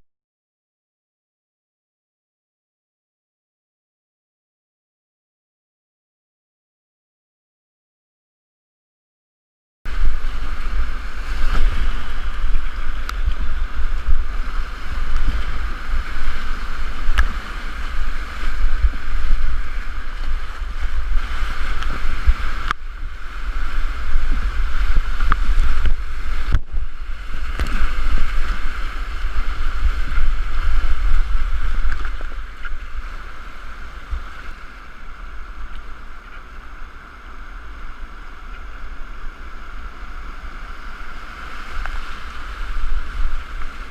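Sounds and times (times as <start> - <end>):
rushing river whitewater: 9.9 - 43.9
wind buffeting microphone: 9.9 - 43.9.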